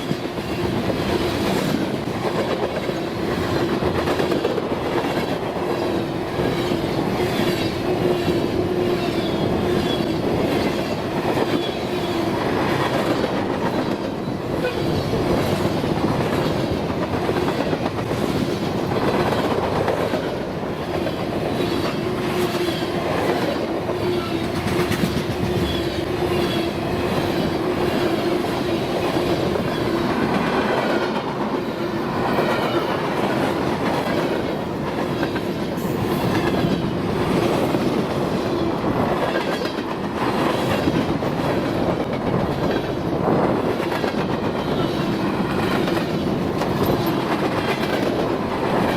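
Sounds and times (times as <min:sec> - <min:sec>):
freight train wheels clicking: 0:00.0 - 0:48.9.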